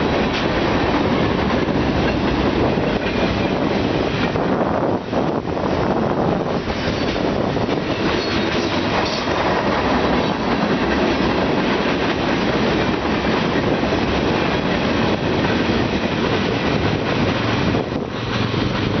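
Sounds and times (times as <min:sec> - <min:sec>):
wheels clicking over rail joints: 0:00.0 - 0:04.5
freight train rumbling past: 0:00.0 - 0:19.0.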